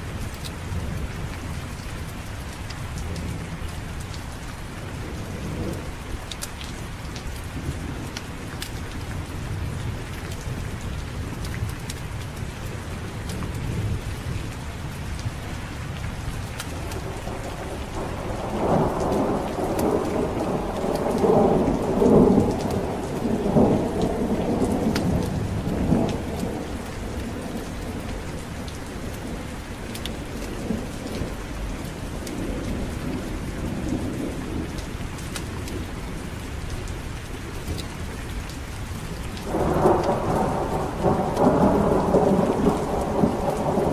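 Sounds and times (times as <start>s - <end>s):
heavy rain: 0.0s - 43.9s
thunder rolling: 16.8s - 29.6s, 39.4s - 43.9s.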